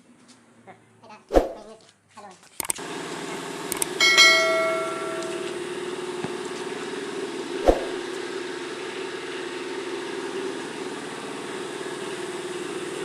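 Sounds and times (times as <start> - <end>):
machine hum: 2.6 - 13.0.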